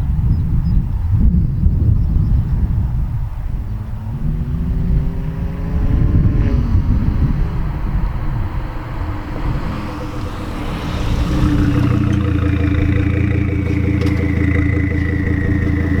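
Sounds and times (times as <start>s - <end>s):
car exhaust drone: 3.7s - 16.0s
thin high turbo whine: 7.5s - 16.0s.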